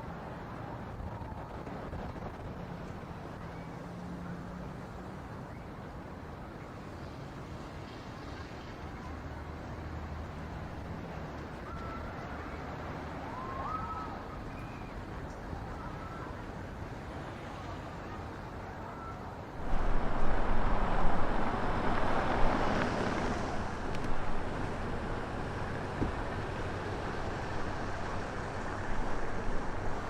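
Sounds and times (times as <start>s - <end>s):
street noise: 0.0s - 30.0s
wind buffeting microphone: 19.6s - 30.0s.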